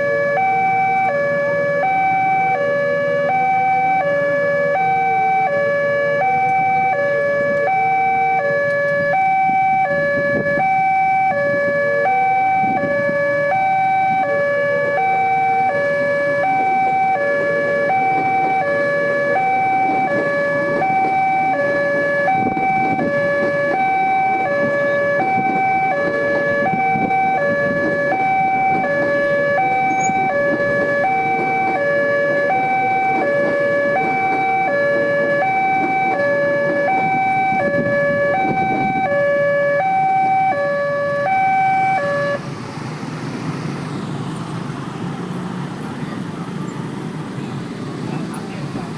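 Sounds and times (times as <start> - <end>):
level crossing two-tone alarm: 0.0 - 42.4
road traffic noise: 0.0 - 48.9.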